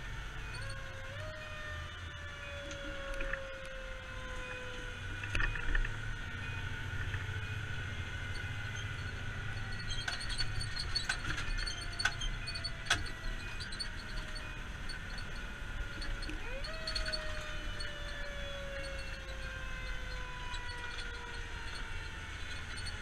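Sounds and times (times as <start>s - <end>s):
vehicle engine running with whine: 0.0s - 23.0s
scattered clicks and knocks: 5.1s - 6.0s, 7.0s - 7.5s, 8.2s - 23.0s.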